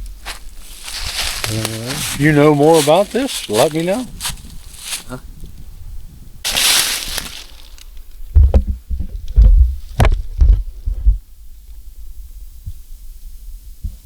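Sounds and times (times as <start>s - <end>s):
microphone handling hiss: 0.0s - 14.0s
low handling thumps and rumbles: 8.3s - 11.3s.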